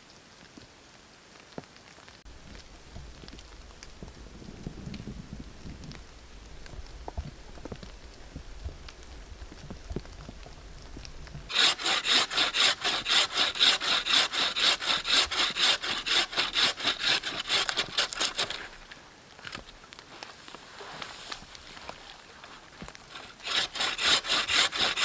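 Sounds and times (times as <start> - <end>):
hand saw cutting wood: 11.5 - 18.8, 23.1 - 25.0.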